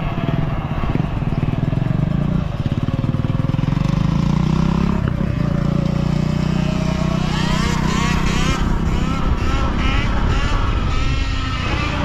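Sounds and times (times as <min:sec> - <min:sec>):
electric dirt bike motors whining: 0:06.7 - 0:12.0.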